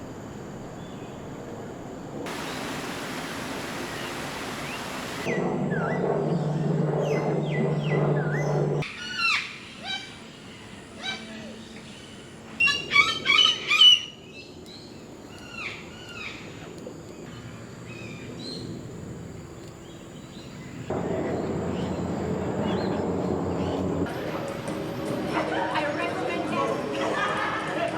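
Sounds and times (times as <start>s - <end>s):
birds chirping and whistling: 2.3s - 10.6s
steady low background sound: 20.6s - 25.3s.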